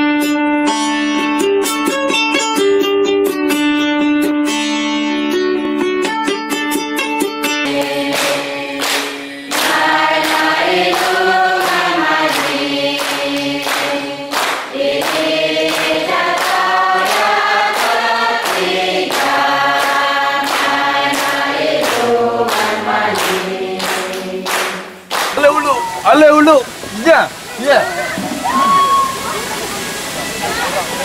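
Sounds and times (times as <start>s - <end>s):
choir singing: 7.6s - 24.9s.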